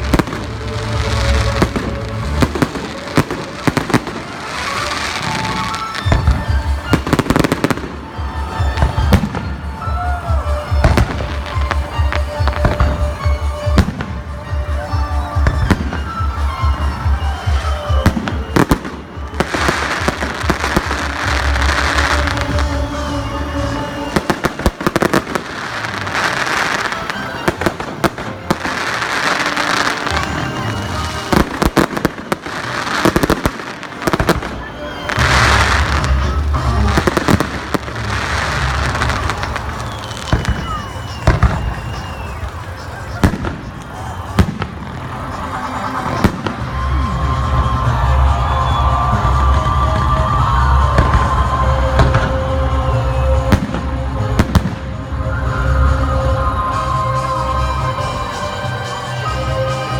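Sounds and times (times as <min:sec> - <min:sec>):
fireworks bangs and crackle: 0:00.0 - 0:59.9
music with pulsing bass: 0:35.1 - 0:40.4.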